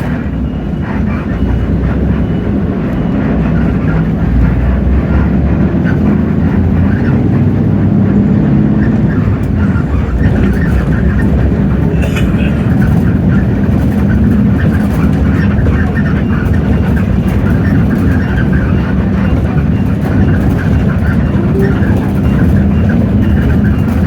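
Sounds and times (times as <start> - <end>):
bus diesel engine running: 0.0 - 24.0
road and body rattle: 0.0 - 24.0.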